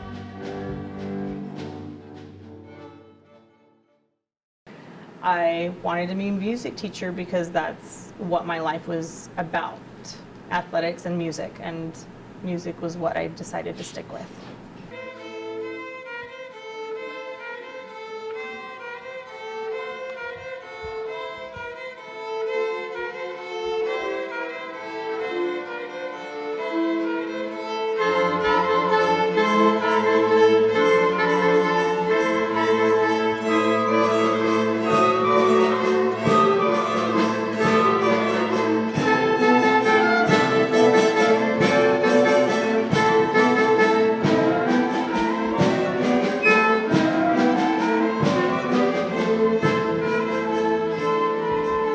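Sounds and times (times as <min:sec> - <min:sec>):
string ensemble with low strings: 0:14.9 - 0:51.9
violin melody: 0:14.9 - 0:51.9.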